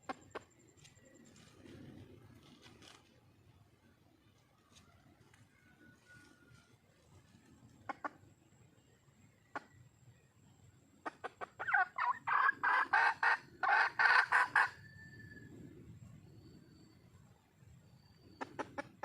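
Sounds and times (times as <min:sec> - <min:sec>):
hen clucking and cackling: 0:04.7 - 0:08.6, 0:11.0 - 0:14.9, 0:18.4 - 0:19.0.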